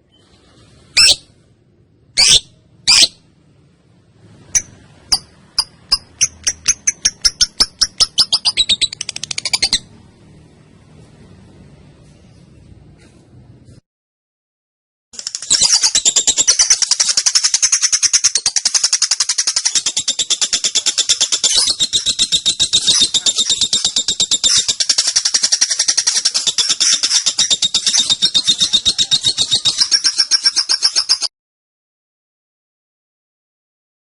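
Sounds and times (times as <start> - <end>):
lovebird chattering: 2.2 - 3.2, 4.5 - 9.9, 15.2 - 31.3.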